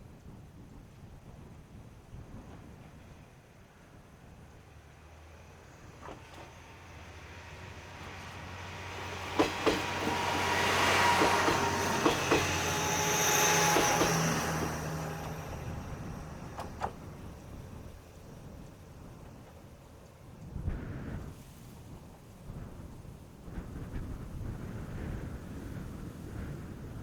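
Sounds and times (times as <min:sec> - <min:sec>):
diesel railcar engine drone: 0:04.2 - 0:21.0
wheels clicking over rail joints: 0:05.5 - 0:20.0
thin whine: 0:06.0 - 0:18.0.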